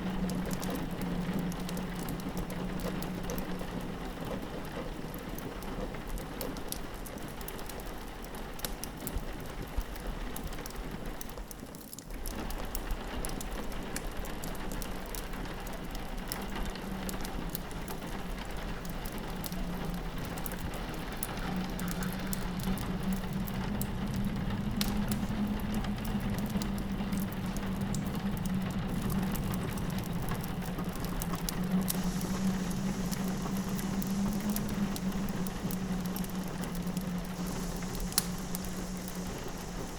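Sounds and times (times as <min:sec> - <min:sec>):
log fire crackling: 0:00.0 - 0:39.9
rain pattering on window: 0:00.0 - 0:39.9
low wind drone: 0:16.9 - 0:39.9.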